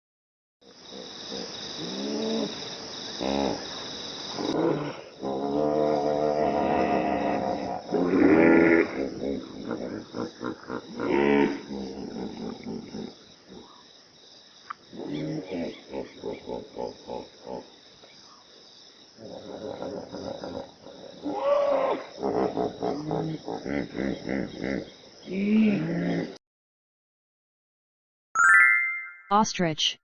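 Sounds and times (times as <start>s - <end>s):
hippopotamus grunting: 3.2s - 3.7s, 4.3s - 13.8s, 14.9s - 17.7s, 19.2s - 26.4s.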